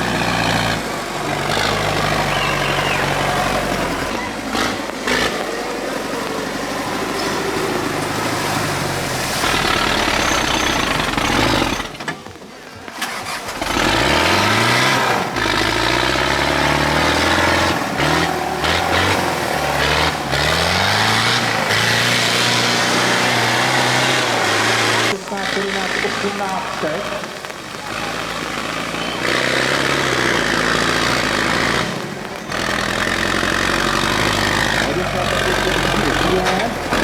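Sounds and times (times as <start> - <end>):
tractor engine revving: 0.0 - 37.0.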